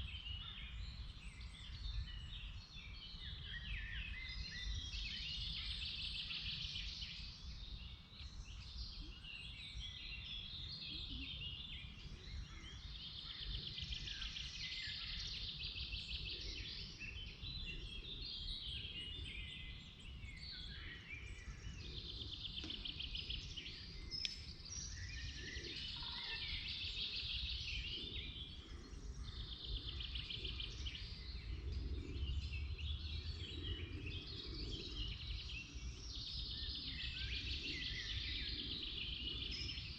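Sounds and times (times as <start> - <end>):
songbirds singing: 0.0 - 39.9
bird chirps: 8.5 - 39.9.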